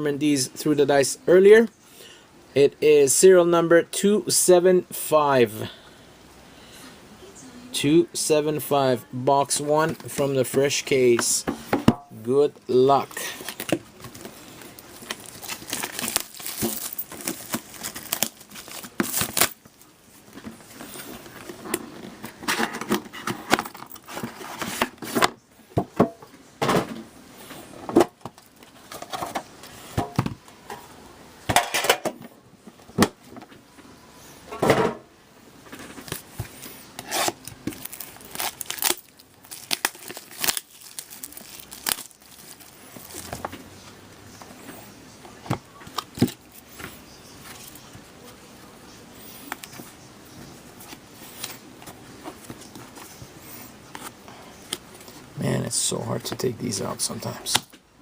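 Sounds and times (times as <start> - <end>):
cardboard packaging clicks and rustles: 13.0 - 25.4, 35.7 - 48.4
plastic wrapper crinkling and tearing: 13.3 - 19.6, 37.1 - 43.4.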